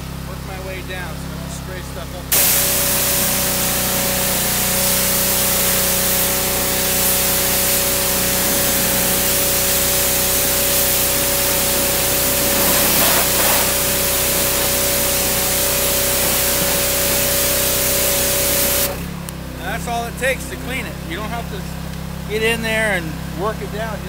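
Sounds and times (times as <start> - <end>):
pressure washer spray hissing: 2.3 - 19.1
constant machine tone: 2.7 - 19.2.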